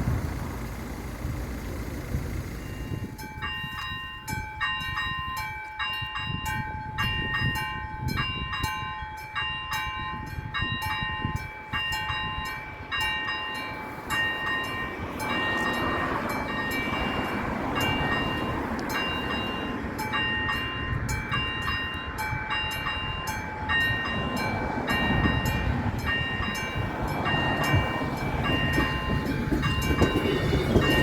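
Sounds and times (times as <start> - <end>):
approaching train rushing: 0.0 - 3.8, 11.3 - 31.0
electronic crossing bell ringing: 2.5 - 31.0
mechanical crossing bell ringing: 2.5 - 31.0.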